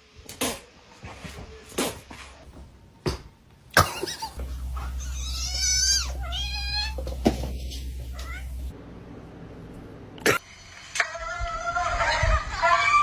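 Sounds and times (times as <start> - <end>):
cat meowing: 4.8 - 8.7.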